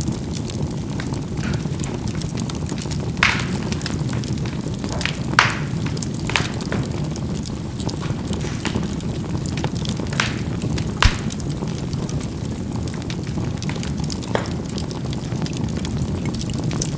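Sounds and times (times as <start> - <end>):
embers popping and crackling: 0.0 - 16.9
fire rumbling: 0.0 - 16.9.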